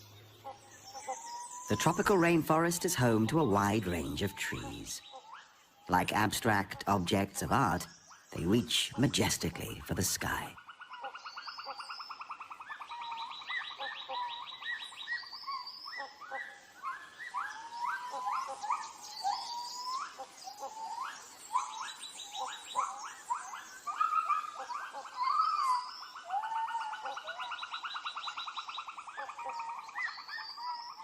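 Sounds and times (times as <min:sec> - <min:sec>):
rising whistled animal calls: 0:10.6 - 0:31.0.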